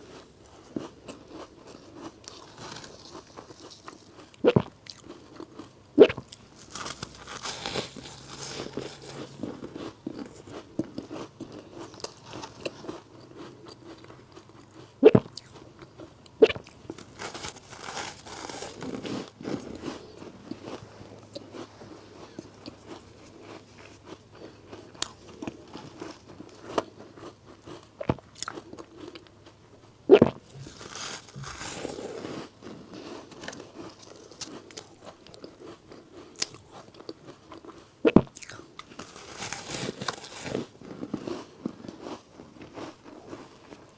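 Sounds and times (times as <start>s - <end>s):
soft crunchy chewing: 0.0s - 43.9s
crunching bites into frozen ice: 0.8s - 13.0s, 16.4s - 20.8s, 30.1s - 32.6s, 38.2s - 41.5s.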